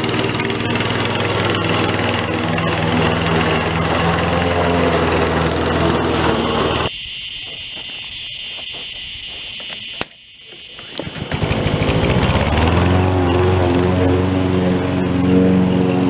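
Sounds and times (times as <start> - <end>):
lawn mower engine running: 0.0 - 6.9, 10.8 - 16.0.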